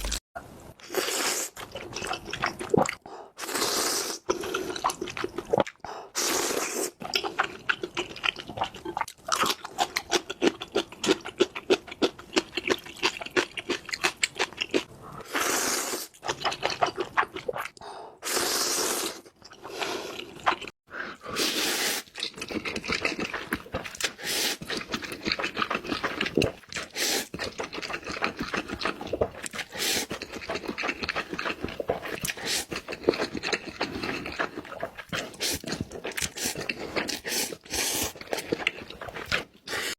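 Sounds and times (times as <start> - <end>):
wet chewing and mouth smacking: 7.0 - 14.9, 16.1 - 17.8, 22.0 - 39.9.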